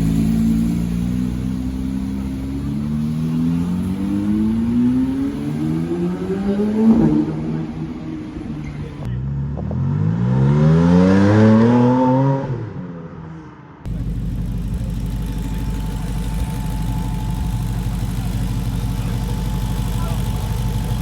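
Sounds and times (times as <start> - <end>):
car engine accelerating: 0.0 - 12.6, 13.9 - 21.0
engine idling: 13.9 - 21.0.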